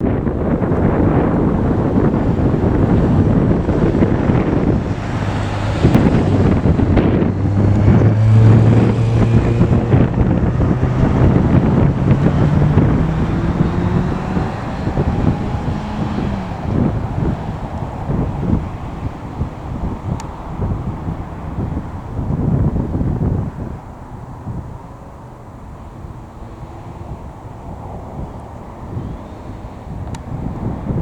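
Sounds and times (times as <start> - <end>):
airliner cabin roar: 0.0 - 31.0
low engine hum: 0.0 - 31.0
rushing air: 0.0 - 31.0.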